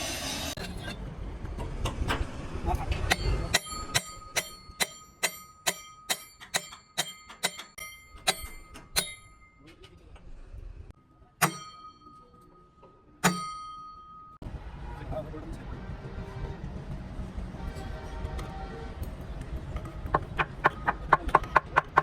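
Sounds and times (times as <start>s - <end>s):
hammer striking metal: 2.9s - 9.8s, 11.4s - 14.4s.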